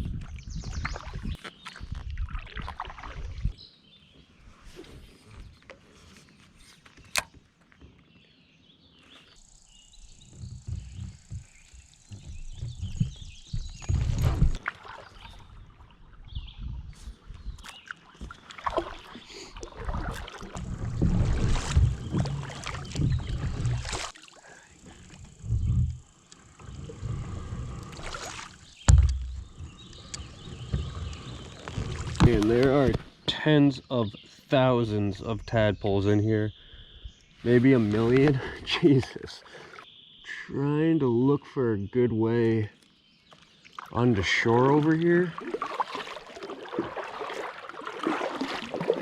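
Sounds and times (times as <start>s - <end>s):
paddle knocking kayak hull: 10.0s - 15.0s, 18.1s - 24.1s, 24.9s - 33.0s, 44.5s - 49.0s.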